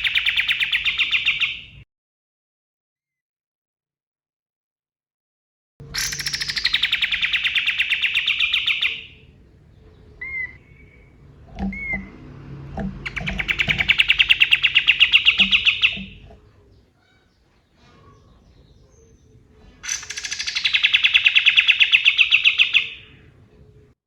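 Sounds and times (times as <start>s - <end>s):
bird rattling trills: 5.9s - 9.3s, 10.1s - 17.3s, 18.0s - 23.1s.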